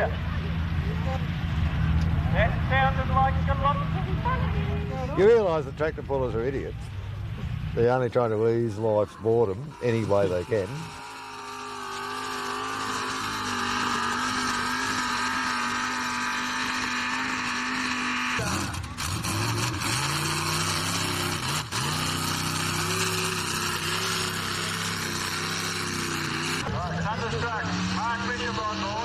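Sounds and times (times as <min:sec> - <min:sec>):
tractor engine running hard: 0:08.4 - 0:29.0.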